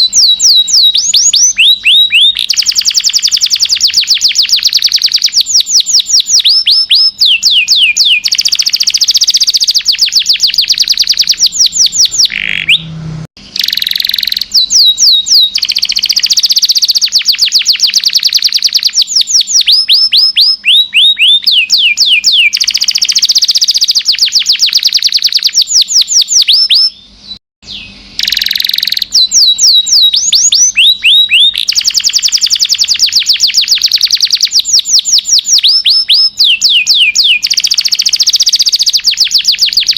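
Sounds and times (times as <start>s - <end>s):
canary singing trills and whistles: 0.0s - 39.9s.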